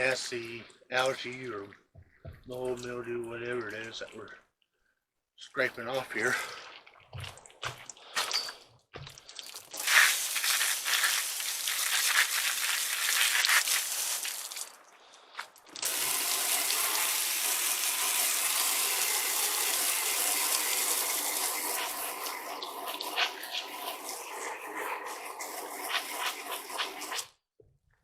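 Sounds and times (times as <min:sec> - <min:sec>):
hose spraying water onto wooden steps: 0:09.0 - 0:14.8, 0:15.4 - 0:27.3.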